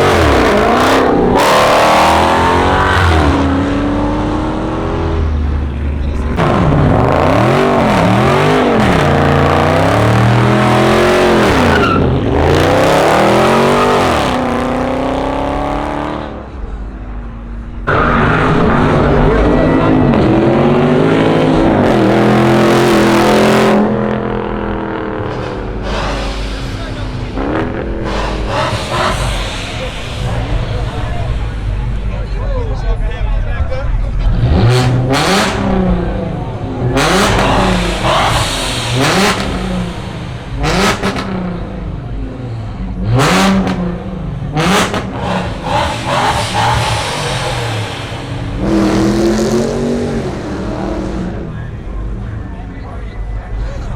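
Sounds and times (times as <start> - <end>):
car engine revving: 0.0 - 53.9
loud hiss: 25.4 - 32.8, 35.6 - 42.6, 45.0 - 50.4.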